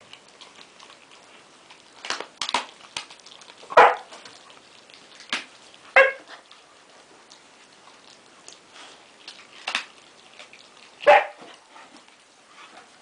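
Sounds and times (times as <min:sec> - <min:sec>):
sharp snaps and clicks: 0:01.7 - 0:05.6, 0:08.0 - 0:08.6, 0:09.2 - 0:10.7
dogs barking: 0:03.7 - 0:04.2, 0:05.9 - 0:06.4, 0:11.0 - 0:11.5.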